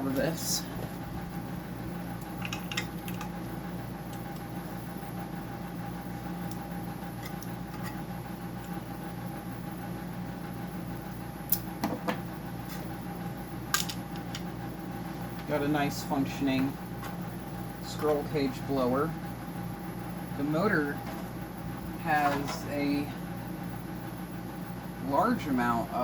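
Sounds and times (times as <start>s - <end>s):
machine hum: 0.0s - 26.0s
clicks and knocks of parts: 13.7s - 14.5s.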